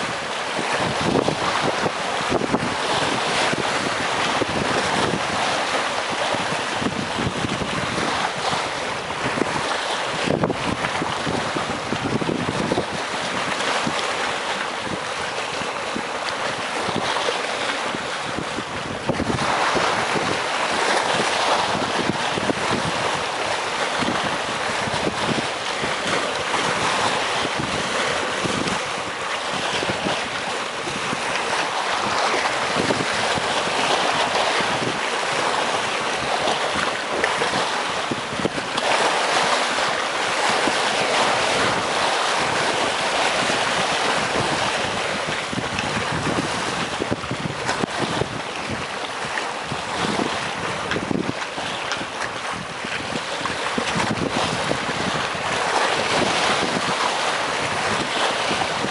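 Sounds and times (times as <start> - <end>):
sea waves washing against rocks: 0.0 - 58.9.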